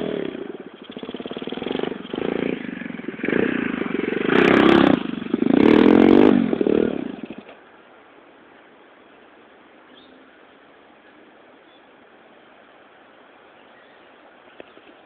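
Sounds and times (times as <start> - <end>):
pit bike engine revving: 0.0 - 7.5.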